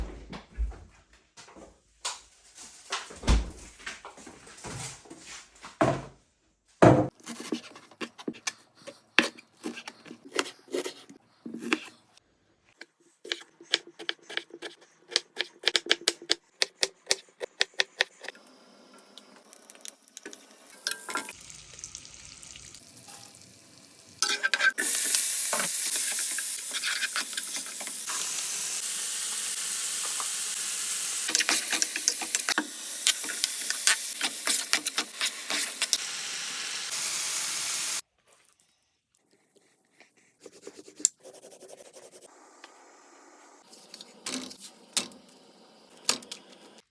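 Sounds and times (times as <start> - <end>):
food sizzling in hot oil: 19.4 - 38.0
utensils clinking against dishes: 24.2 - 27.9.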